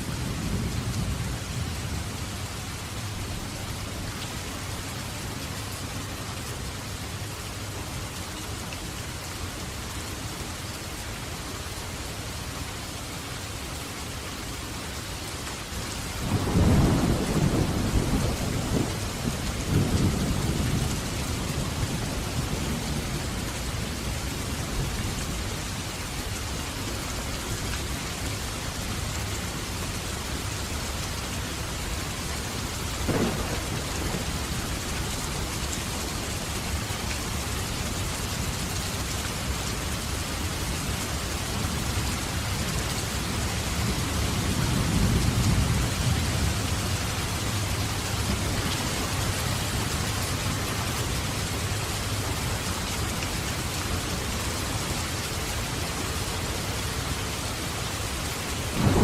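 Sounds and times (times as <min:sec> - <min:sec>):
heavy rain: 0:00.0 - 0:59.0
rolling thunder: 0:16.2 - 0:23.1, 0:33.0 - 0:34.8, 0:58.8 - 0:59.0.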